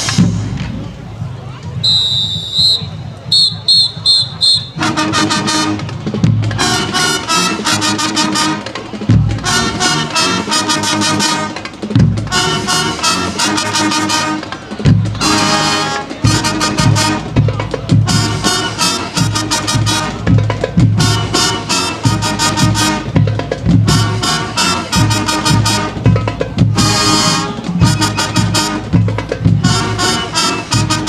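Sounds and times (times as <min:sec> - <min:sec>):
drums hitting strong beats: 0:00.0 - 0:01.9, 0:02.8 - 0:07.0, 0:08.9 - 0:09.9, 0:11.1 - 0:12.8, 0:14.8 - 0:15.4, 0:16.2 - 0:31.0
marching band playing: 0:00.0 - 0:31.0.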